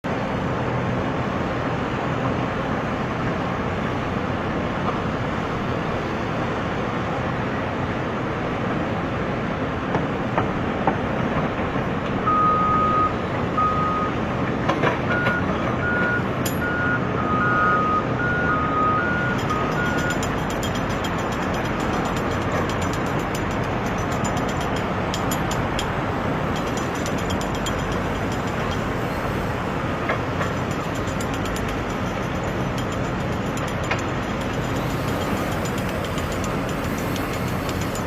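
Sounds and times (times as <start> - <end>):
reversing alarm beeping: 12.2 - 14.2, 15.1 - 21.2
model machines mechanical drone: 19.4 - 38.0.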